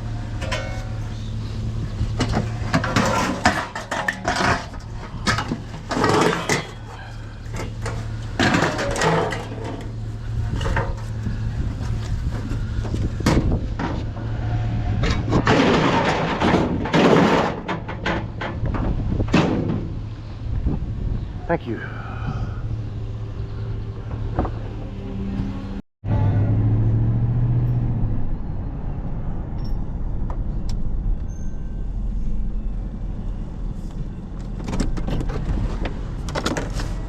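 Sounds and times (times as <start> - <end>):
scrap metal clanking: 0.0 - 20.0
low steady hum: 0.0 - 25.8.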